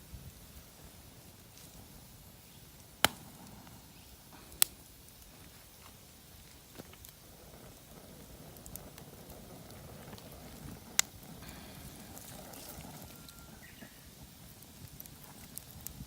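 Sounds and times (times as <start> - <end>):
campfire crackling: 0.0 - 16.0
loud sharp fire pop: 3.0 - 3.7.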